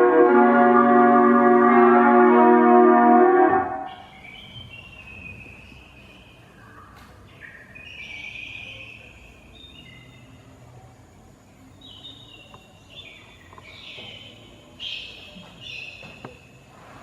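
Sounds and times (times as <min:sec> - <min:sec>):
faint chirping: 0:03.8 - 0:17.0.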